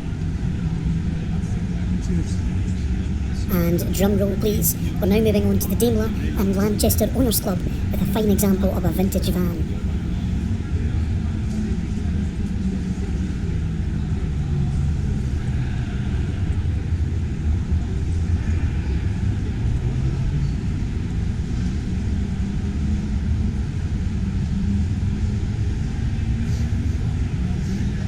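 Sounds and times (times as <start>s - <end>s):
exhibition hall background rumble: 3.4s - 10.5s.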